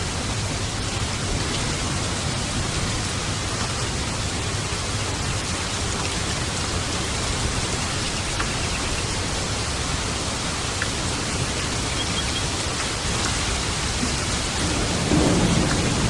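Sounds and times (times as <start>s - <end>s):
rain falling: 0.0s - 16.0s
faint raindrop ticks: 5.4s - 9.5s, 10.6s - 16.0s.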